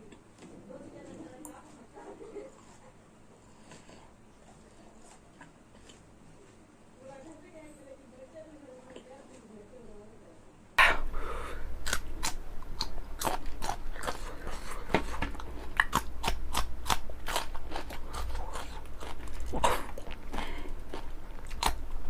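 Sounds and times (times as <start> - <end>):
chillies being chewed crunchily: 0.0 - 6.5, 11.6 - 22.0.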